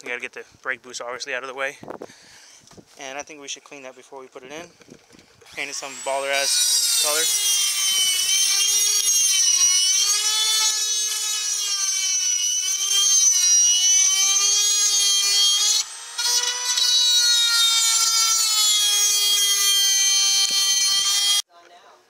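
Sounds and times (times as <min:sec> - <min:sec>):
rotary tool drilling through sheet metal: 0:05.4 - 0:21.4.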